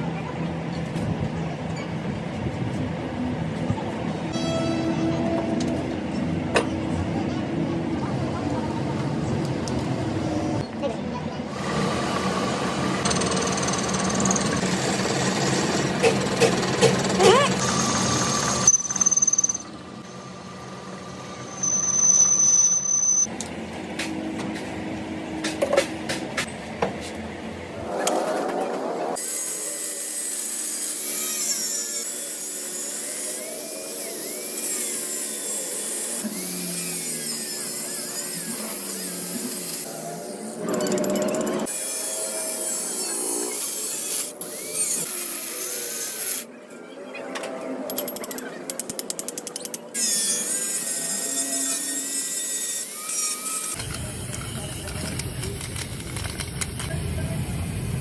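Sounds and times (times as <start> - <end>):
high machine whine: 4.2 - 10.6, 11.5 - 23.4.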